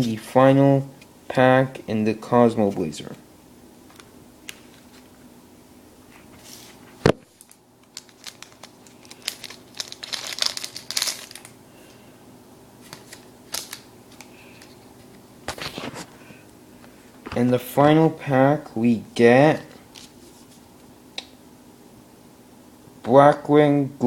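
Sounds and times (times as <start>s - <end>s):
foil wrapper tearing and crinkling: 7.3s - 11.6s, 12.9s - 14.3s.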